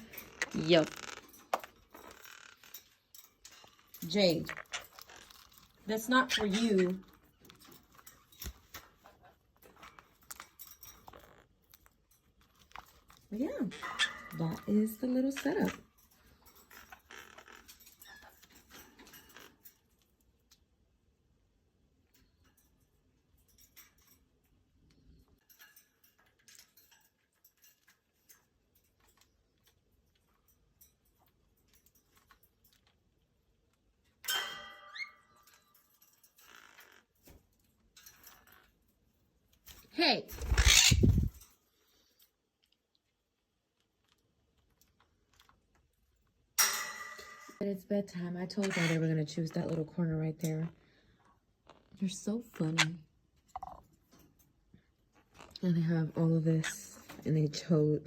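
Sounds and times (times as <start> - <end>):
parrots clicking and ticking: 0.0 - 21.0, 21.7 - 47.6, 48.4 - 55.9
parrots tapping wire cage: 46.6 - 47.6.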